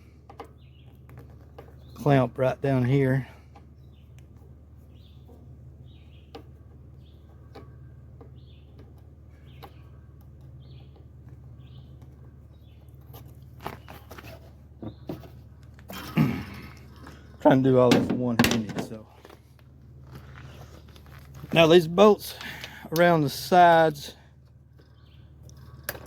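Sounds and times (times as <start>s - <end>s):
bird chirping: 0.5s - 15.6s, 23.5s - 26.0s
hand tools and metal clatter: 6.2s - 26.0s.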